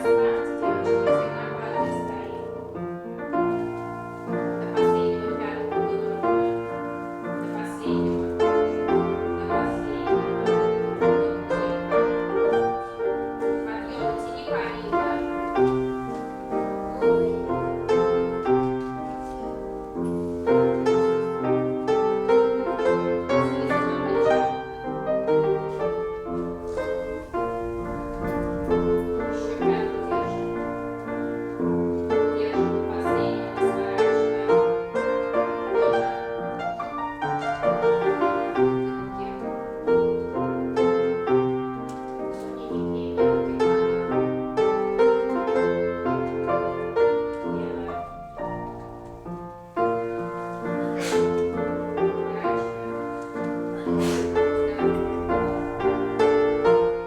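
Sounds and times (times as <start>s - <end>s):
classical piano piece: 0.0s - 57.0s.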